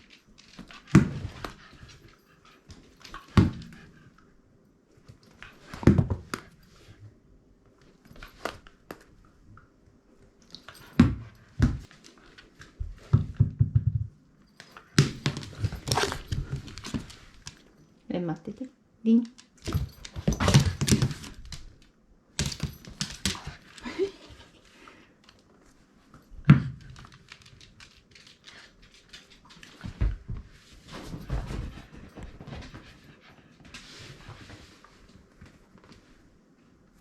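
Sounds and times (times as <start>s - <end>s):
dog pouncing thumps and knocks: 12.8s - 14.2s, 14.9s - 17.6s, 19.6s - 21.6s, 22.4s - 23.7s.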